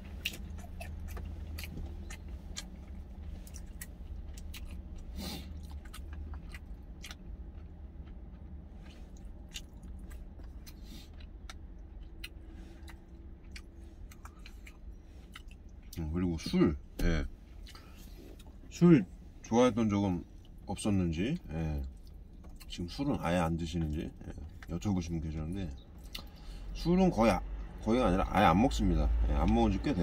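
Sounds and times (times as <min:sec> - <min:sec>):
person chewing food: 0:00.0 - 0:16.0, 0:17.6 - 0:18.6, 0:26.0 - 0:26.4
steady low hum: 0:00.0 - 0:30.0.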